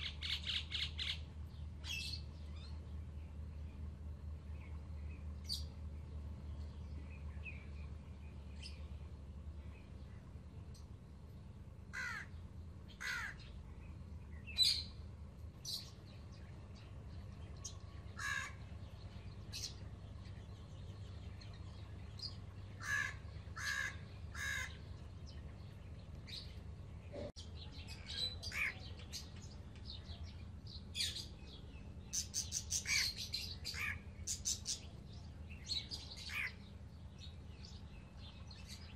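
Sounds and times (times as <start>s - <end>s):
low hum: 0.0s - 38.9s
parakeet chicks calling: 11.9s - 13.6s, 17.6s - 18.7s, 22.2s - 25.4s, 32.1s - 34.9s, 35.7s - 36.7s.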